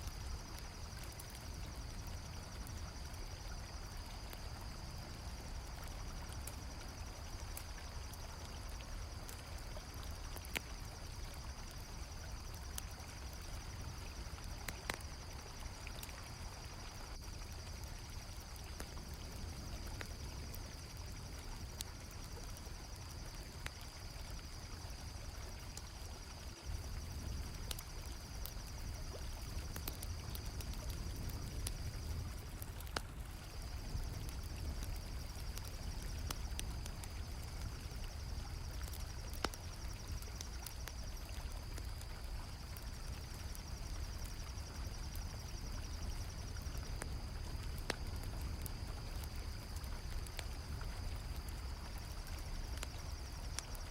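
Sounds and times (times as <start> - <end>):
campfire crackling pops: 0.0 - 53.9
crickets chirping: 0.0 - 53.9.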